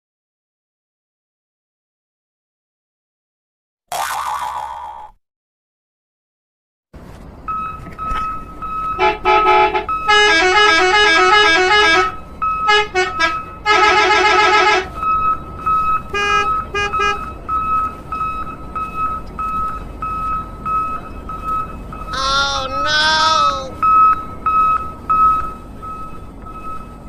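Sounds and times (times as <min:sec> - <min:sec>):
synthesized horn tune: 0:09.0 - 0:14.9
toy beeping tone: 0:22.0 - 0:26.8.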